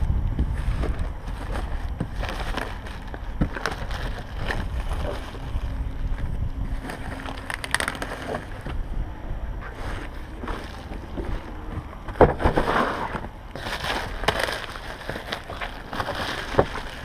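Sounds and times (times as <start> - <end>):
low handling rumble: 0.0 - 17.0
plastic wrap crackling: 0.4 - 8.8, 9.6 - 17.0.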